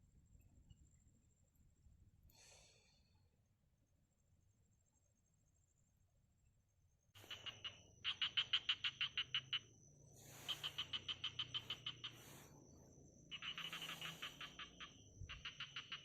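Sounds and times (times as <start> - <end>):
frog calling in clicking pulses: 7.2 - 12.3, 13.3 - 16.0.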